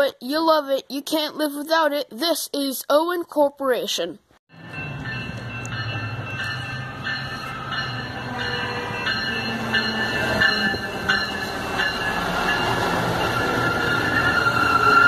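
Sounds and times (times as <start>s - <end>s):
crossing warning bell ringing: 4.5s - 15.0s
train engines humming: 4.5s - 15.0s
high squeal from train: 13.1s - 15.0s.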